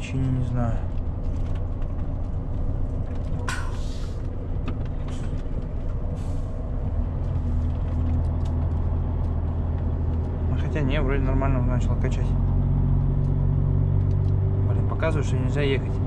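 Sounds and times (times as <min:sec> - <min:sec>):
diesel truck engine idling: 0:00.0 - 0:16.0
air venting hiss: 0:03.5 - 0:04.3.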